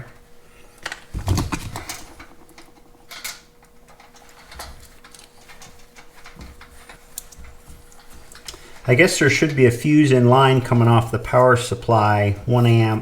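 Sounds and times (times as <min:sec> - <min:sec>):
faint steady hum: 0:00.0 - 0:13.0
hands working wires clicking: 0:00.8 - 0:08.6.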